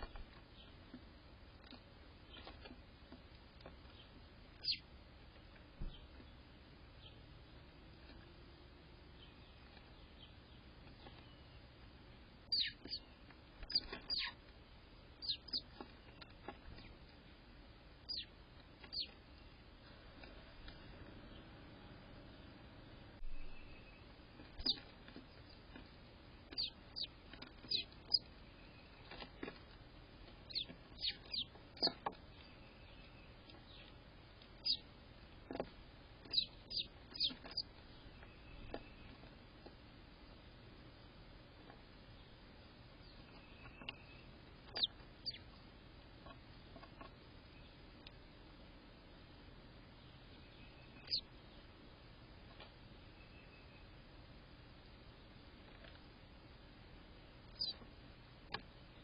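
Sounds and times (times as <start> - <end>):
bird chirps dropping in pitch: 12.5 - 13.0, 36.3 - 37.7, 50.6 - 51.2, 57.6 - 57.8
bird chirps sliding down: 43.3 - 45.4, 50.7 - 51.3, 57.5 - 57.8.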